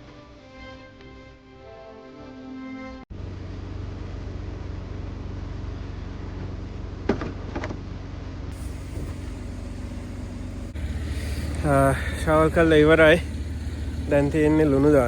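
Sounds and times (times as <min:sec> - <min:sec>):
low engine hum: 0:03.1 - 0:15.0.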